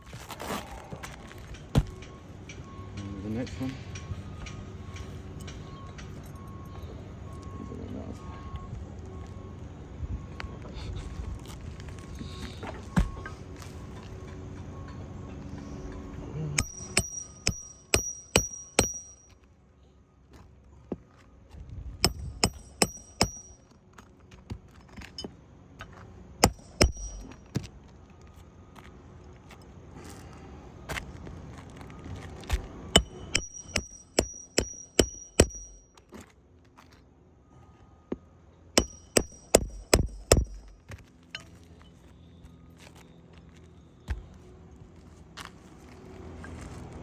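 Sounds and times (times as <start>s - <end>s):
hammer striking roofing nails: 16.6s - 19.2s, 22.0s - 23.6s, 26.4s - 27.4s, 33.0s - 35.8s, 38.8s - 40.9s.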